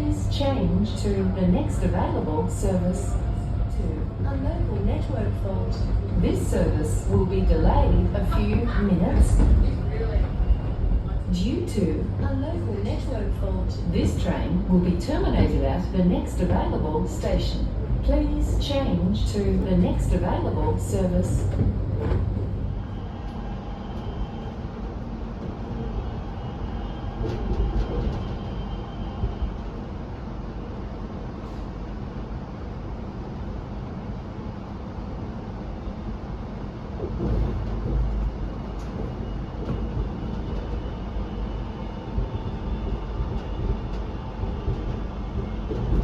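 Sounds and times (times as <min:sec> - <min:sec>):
train low rumble: 0:00.0 - 0:46.0
train clunks: 0:03.7 - 0:24.2, 0:27.0 - 0:29.5, 0:37.0 - 0:41.0, 0:42.1 - 0:46.0.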